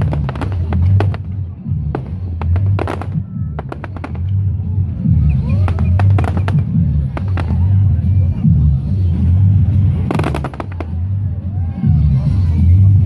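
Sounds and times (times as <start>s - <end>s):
fireworks bangs and crackles: 0.0s - 11.4s
whistling fireworks: 2.0s - 4.4s, 5.1s - 7.7s, 10.1s - 11.1s.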